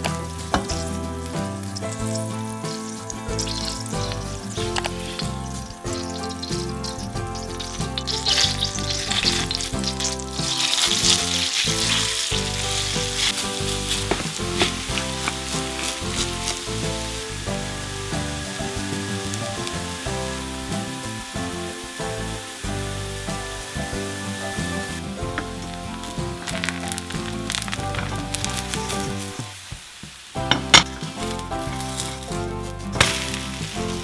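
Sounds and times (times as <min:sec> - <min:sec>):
light background music: 0:00.0 - 0:34.0
potato sizzling in a pan: 0:00.0 - 0:34.0.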